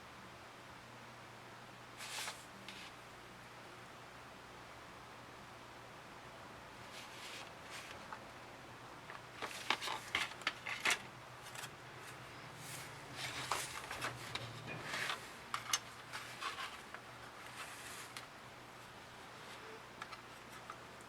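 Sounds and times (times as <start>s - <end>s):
tools clicking and tapping plastic: 13.4s - 16.0s.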